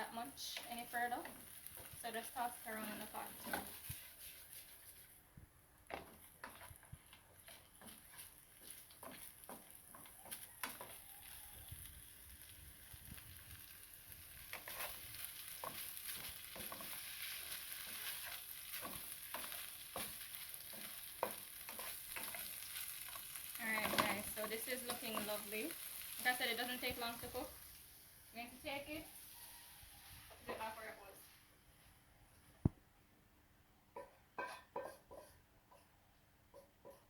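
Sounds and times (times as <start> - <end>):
fish sizzling in hot oil: 0.0 - 5.0, 7.5 - 30.0
utensil scraping and knocking pot: 0.4 - 5.0, 5.9 - 11.2, 14.4 - 25.5, 34.3 - 35.9.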